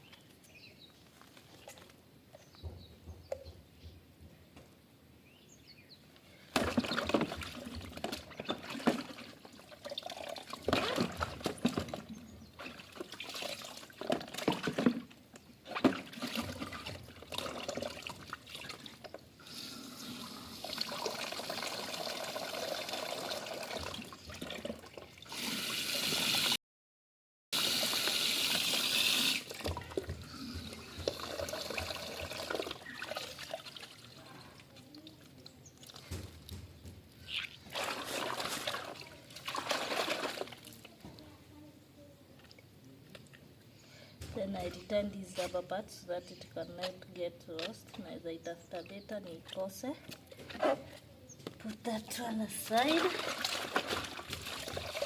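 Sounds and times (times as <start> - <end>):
water splashing: 6.6 - 19.1, 27.6 - 36.2, 37.3 - 41.0, 51.9 - 55.0
running water: 6.6 - 26.6, 27.6 - 36.6, 51.6 - 55.0.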